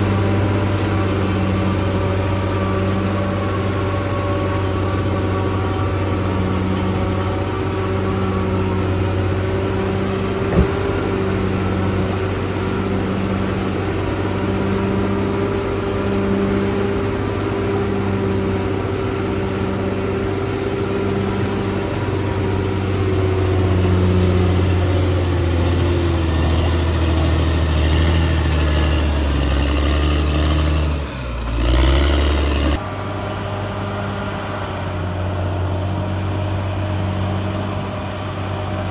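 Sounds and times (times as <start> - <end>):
bulldozer diesel engine running: 0.0 - 38.9
low pulse: 10.2 - 13.5.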